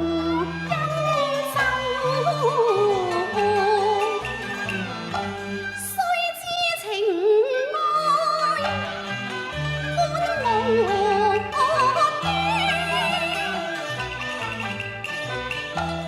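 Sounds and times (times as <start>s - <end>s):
opera singing with vibrato: 0.0s - 4.8s, 5.8s - 8.9s, 9.8s - 14.2s
instrumental accompaniment: 0.0s - 6.7s, 8.0s - 16.0s.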